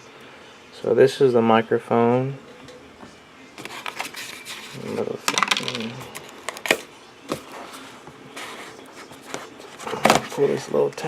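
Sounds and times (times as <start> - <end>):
packaging clicks and rustles: 3.6 - 7.6.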